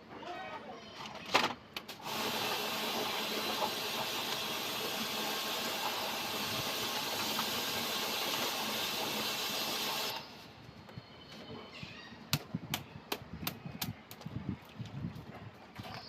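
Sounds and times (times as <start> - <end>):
high-pressure water spray hissing: 2.0 - 10.4.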